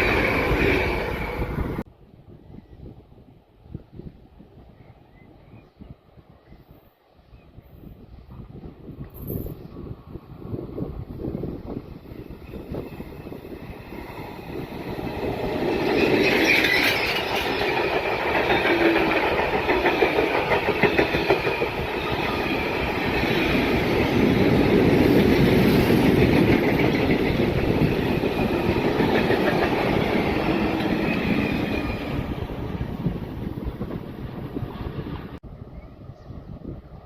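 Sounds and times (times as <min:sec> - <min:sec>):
train wheels rolling on rails: 0:08.4 - 0:35.4.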